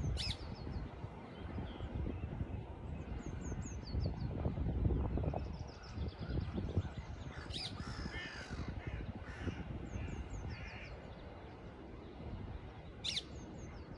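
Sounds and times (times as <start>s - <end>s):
crows cawing: 7.3s - 9.7s
small birds chirping: 9.0s - 13.9s.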